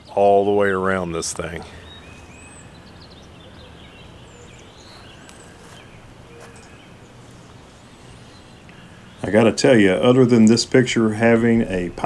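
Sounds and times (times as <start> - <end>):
low hiss and hum: 0.0 - 12.0
faint bird chirps: 1.5 - 10.5.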